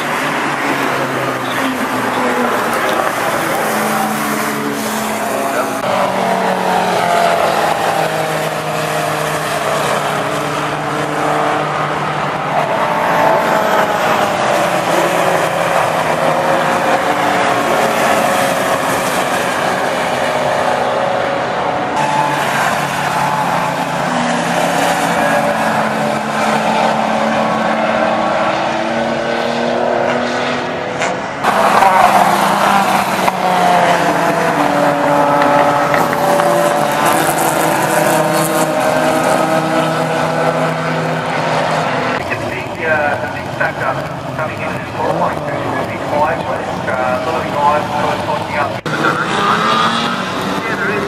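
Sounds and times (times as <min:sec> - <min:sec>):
racing car engines passing: 0:00.0 - 0:51.0
steady rushing noise: 0:31.1 - 0:51.0.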